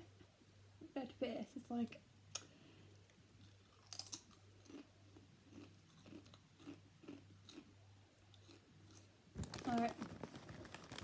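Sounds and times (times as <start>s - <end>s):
low electrical hum: 0.0s - 11.0s
faint chewing of food: 2.3s - 9.1s
crunchy bite: 3.6s - 4.9s.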